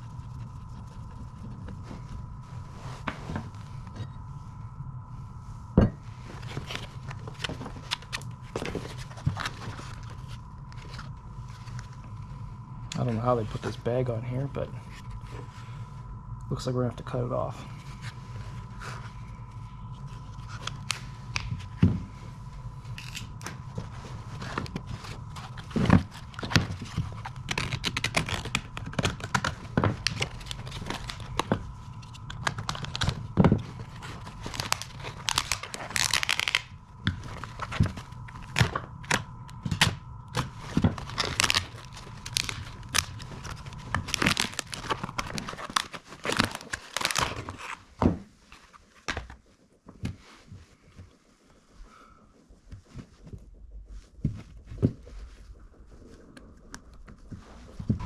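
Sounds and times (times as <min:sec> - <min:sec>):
plastic rustling: 0:17.6 - 0:51.6
plastic bag tearing and crinkling: 0:24.6 - 0:47.9.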